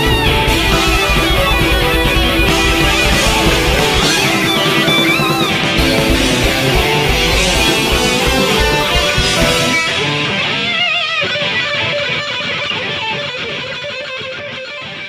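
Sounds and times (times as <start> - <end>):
sustained guitar notes with vibrato: 0.0 - 12.0
hard rock band playing: 0.0 - 13.0.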